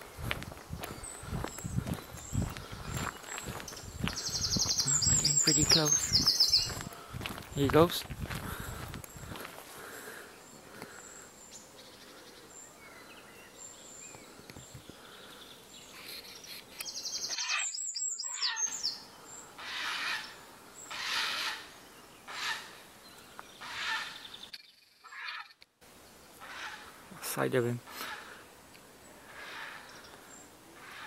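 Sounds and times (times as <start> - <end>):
birds twittering: 0.0 - 28.4, 29.0 - 31.0
loud bird calls: 0.8 - 7.9, 8.5 - 25.6, 26.3 - 27.0, 27.8 - 31.0.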